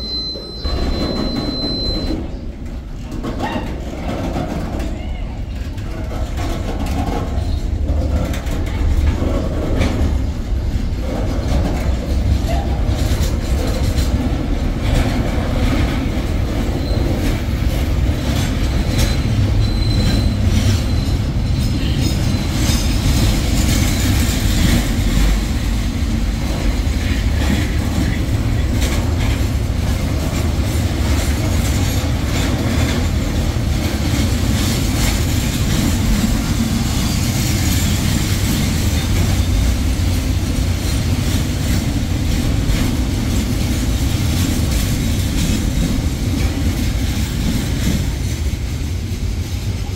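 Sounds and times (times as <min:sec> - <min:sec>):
high wheel squeal: 0:00.0 - 0:02.4, 0:18.8 - 0:23.1
train wheels rumbling on rail: 0:00.0 - 0:49.9
clanks over rail joints: 0:00.6 - 0:49.8.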